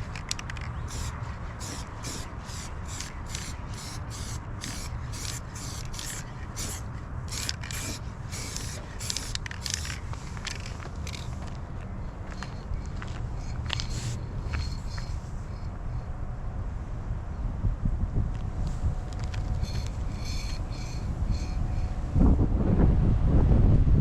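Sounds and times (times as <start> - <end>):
aerosol spray can hissing: 0.0 - 11.4, 13.4 - 15.3, 18.7 - 22.0.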